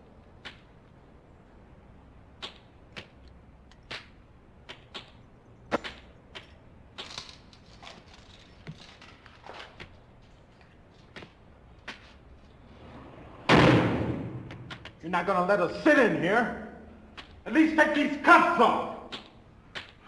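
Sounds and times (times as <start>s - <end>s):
silenced gunshots: 13.5s - 14.6s.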